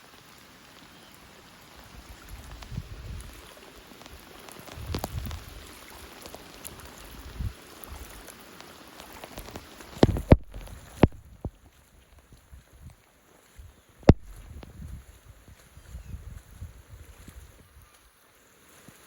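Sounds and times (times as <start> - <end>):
rain falling: 0.0 - 15.1.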